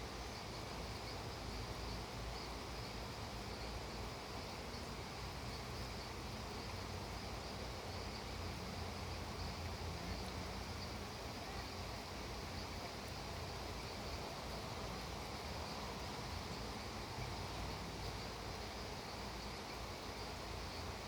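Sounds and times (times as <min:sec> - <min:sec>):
faint insect trill: 0:00.0 - 0:21.0
steady rainfall: 0:00.0 - 0:21.0.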